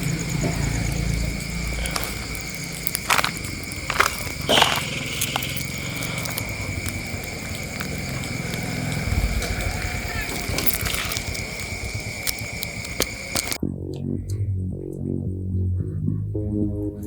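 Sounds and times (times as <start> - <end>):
small crackles: 0.0 - 13.6
low hum: 0.0 - 17.0.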